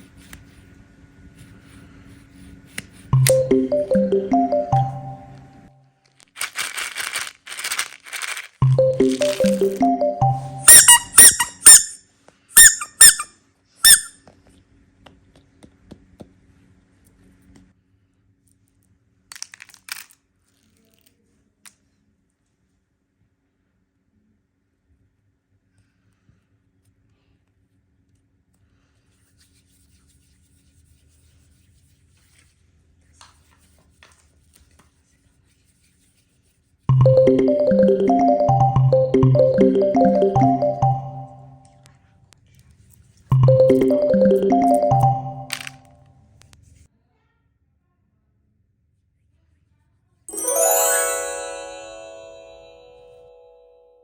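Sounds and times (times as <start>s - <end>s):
high-pitched squeaks: 10.6s - 12.0s, 12.6s - 14.1s.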